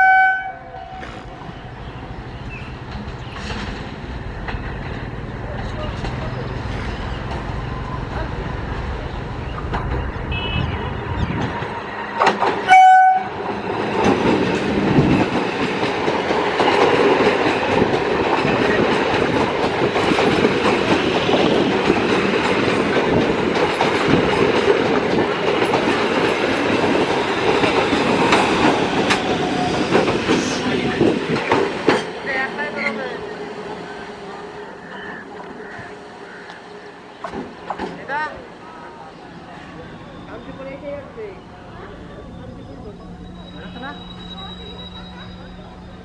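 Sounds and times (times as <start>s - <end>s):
train horn blast: 0.0s - 1.3s, 12.6s - 13.4s
train wheels rolling on rail: 0.0s - 46.0s.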